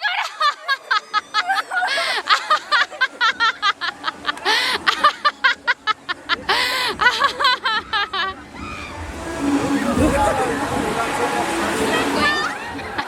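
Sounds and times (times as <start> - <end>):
woman laughing hard: 0.0 - 8.4
gasping breaths: 6.5 - 7.1.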